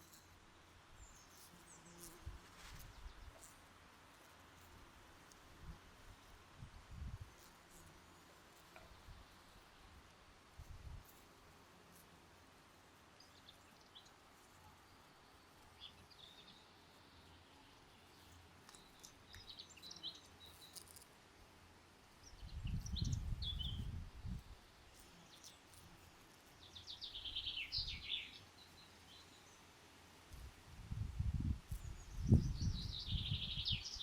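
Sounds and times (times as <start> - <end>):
songbirds chirping: 12.6 - 21.0, 21.9 - 29.8, 31.7 - 34.0.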